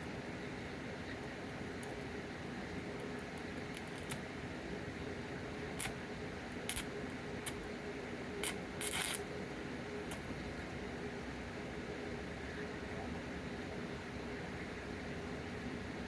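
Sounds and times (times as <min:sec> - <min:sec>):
steady background hum: 0:00.0 - 0:16.0
small parts clicking and scraping: 0:03.4 - 0:04.2, 0:06.7 - 0:07.6, 0:08.4 - 0:09.2.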